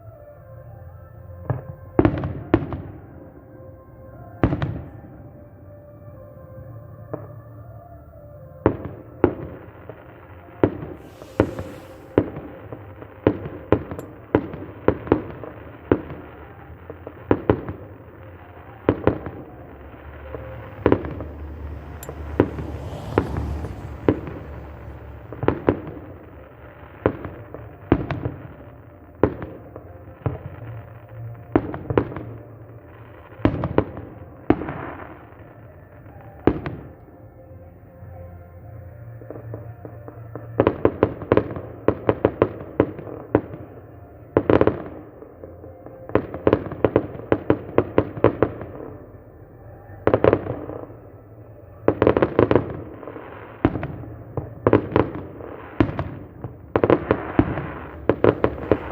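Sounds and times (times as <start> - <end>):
fireworks bangs: 8.7 - 30.8, 50.0 - 58.9
fireworks crackling hiss: 10.0 - 17.2, 18.0 - 27.7, 55.5 - 58.9.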